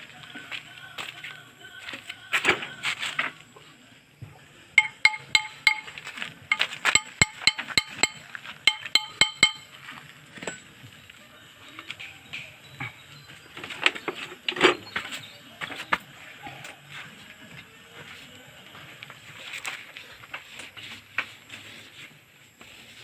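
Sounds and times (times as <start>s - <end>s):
metal taps on steel: 4.8s - 9.7s.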